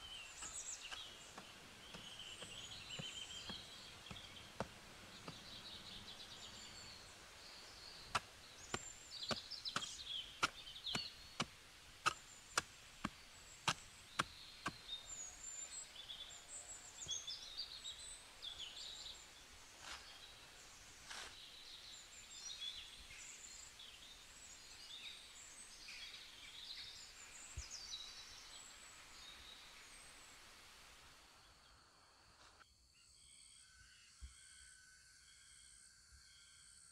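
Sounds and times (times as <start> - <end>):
birds chirping: 0.0 - 32.5
tool striking wood: 8.1 - 14.8.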